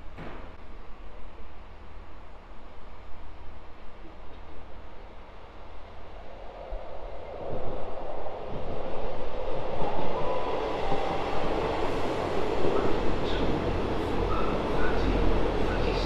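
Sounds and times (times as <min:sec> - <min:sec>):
faint train squeals: 0:09.8 - 0:16.0
diesel train rumble: 0:10.7 - 0:16.0.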